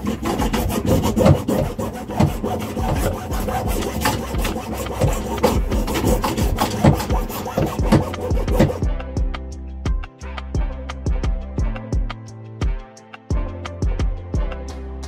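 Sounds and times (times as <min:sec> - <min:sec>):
hand tool rasping on pipe: 0:00.0 - 0:08.9.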